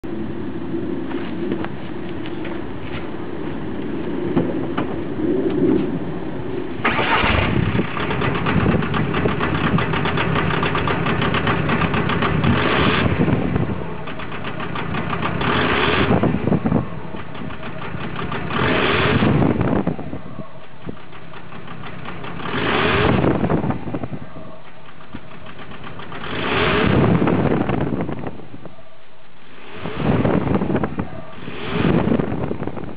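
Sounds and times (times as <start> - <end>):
diesel engine idling roughly: 6.8 - 19.8, 20.7 - 23.6, 24.7 - 27.6.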